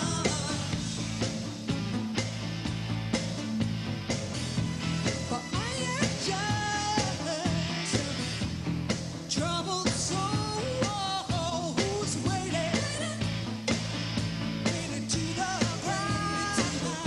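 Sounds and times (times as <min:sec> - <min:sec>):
bass: 0:00.0 - 0:17.0
pop-rock band playing: 0:00.0 - 0:17.0
steady drum beat: 0:00.0 - 0:17.0
woman singing: 0:05.3 - 0:08.2, 0:09.4 - 0:13.3.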